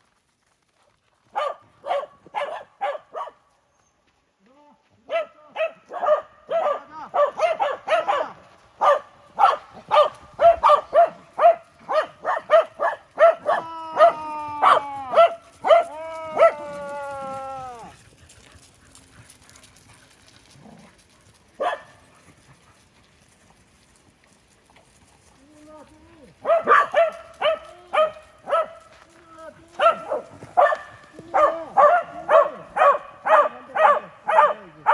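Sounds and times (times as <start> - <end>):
dogs barking excitedly: 1.3 - 3.4, 5.1 - 23.0, 26.3 - 29.1, 29.7 - 34.9
dog howling: 13.2 - 18.0, 29.3 - 34.9.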